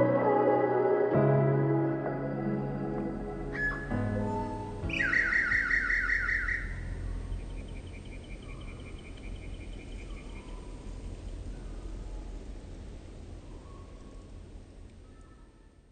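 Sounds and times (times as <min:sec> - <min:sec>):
low background rumble: 0:01.6 - 0:15.9
bird repeating high notes: 0:03.5 - 0:06.8
bird trilling falling notes: 0:03.5 - 0:07.0.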